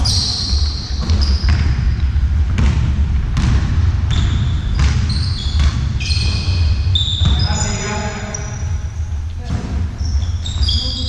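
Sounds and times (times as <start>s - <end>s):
high squeaks: 0.0s - 1.6s, 4.1s - 8.7s, 10.0s - 11.0s
steady low rumble: 0.0s - 10.2s
ball bouncing on hard floor: 1.0s - 7.8s.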